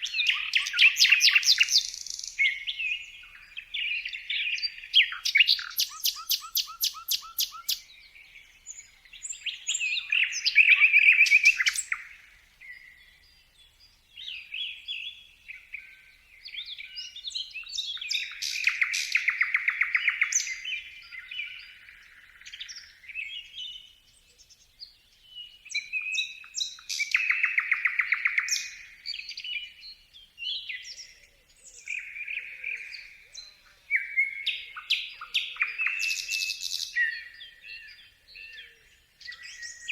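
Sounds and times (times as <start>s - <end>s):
loud rapid bird trills: 4.1s - 7.9s
bird chirping and whistling: 5.0s - 7.8s.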